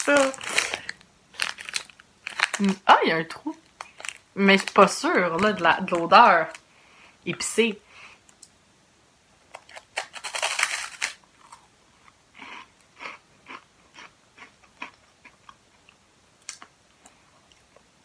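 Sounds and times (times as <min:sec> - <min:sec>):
crunching snack stick: 0:00.0 - 0:02.8, 0:03.6 - 0:04.8, 0:09.5 - 0:11.7.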